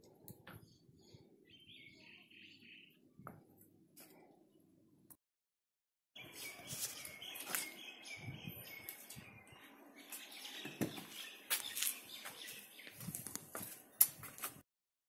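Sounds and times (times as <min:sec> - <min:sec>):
birds chirping: 0:00.0 - 0:03.6, 0:06.2 - 0:14.1.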